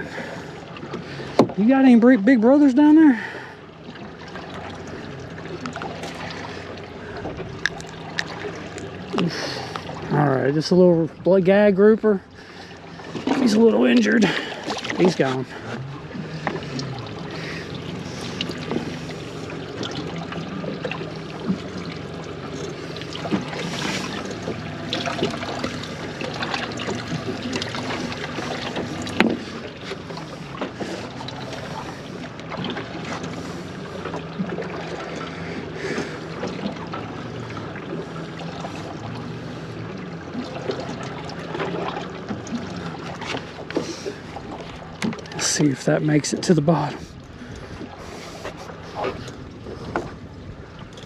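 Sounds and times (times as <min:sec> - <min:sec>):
water noise: 0:00.0 - 0:51.0
wind: 0:00.0 - 0:51.0
knocks and clicks of gear: 0:26.4 - 0:30.0, 0:44.6 - 0:45.4.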